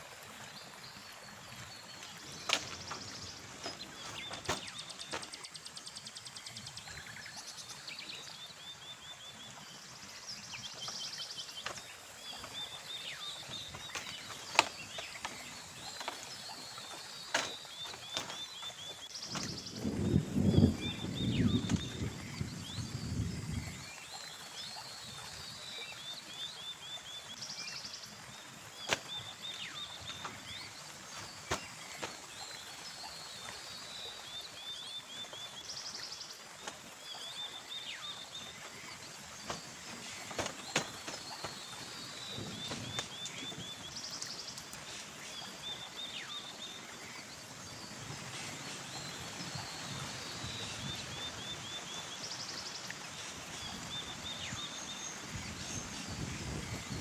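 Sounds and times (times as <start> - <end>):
steady hiss: 27.0 - 57.0.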